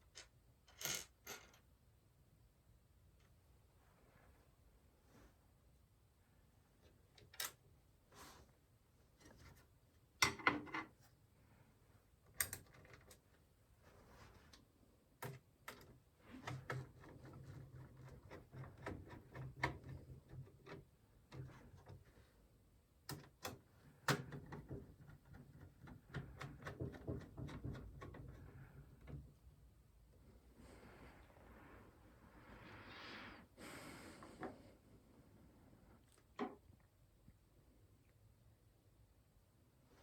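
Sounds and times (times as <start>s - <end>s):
small clicking and rustling: 12.3s - 22.2s.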